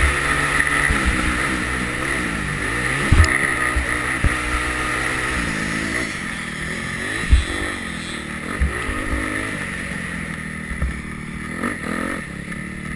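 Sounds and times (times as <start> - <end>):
motorbike engine revving: 0.0 - 12.9
dull thumps: 2.9 - 5.5, 7.2 - 7.8.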